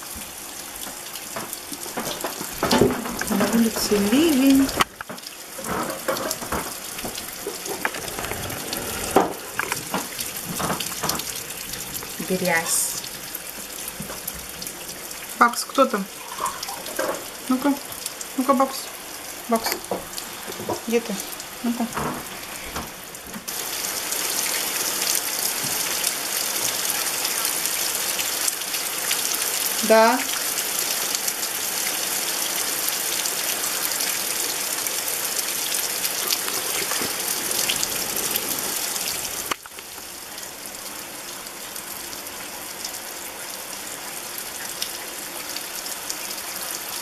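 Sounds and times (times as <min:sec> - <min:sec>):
heavy rain on gravel and puddles: 0:00.0 - 0:47.0
sharp raindrop splats: 0:00.1 - 0:22.4.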